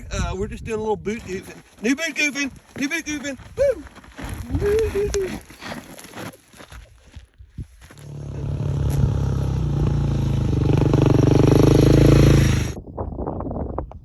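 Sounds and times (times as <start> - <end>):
motorcycle engine running: 8.0 - 12.8.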